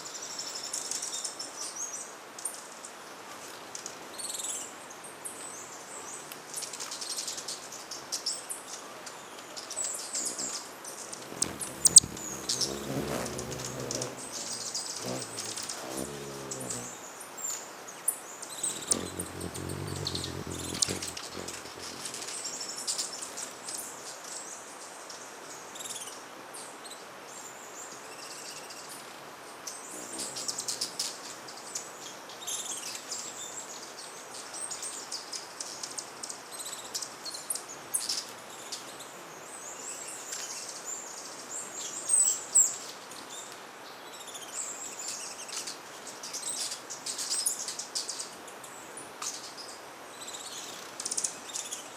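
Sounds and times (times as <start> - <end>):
hummingbirds chipping: 10.1 - 17.2, 18.4 - 23.8, 29.9 - 31.2.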